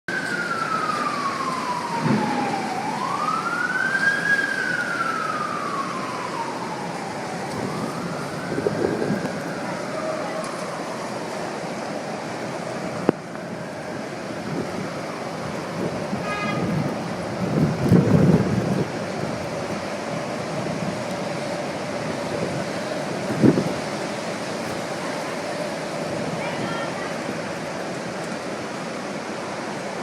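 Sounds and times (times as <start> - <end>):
emergency vehicle siren wailing: 0.1 - 30.0
steady rushing noise: 0.2 - 30.0.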